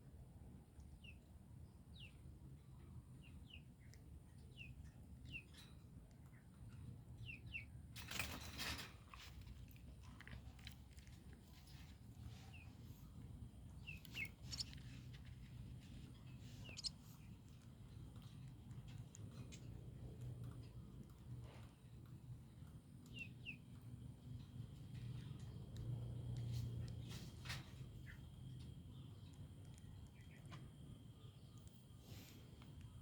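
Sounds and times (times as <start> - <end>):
baby birds peeping: 11.6 - 20.0.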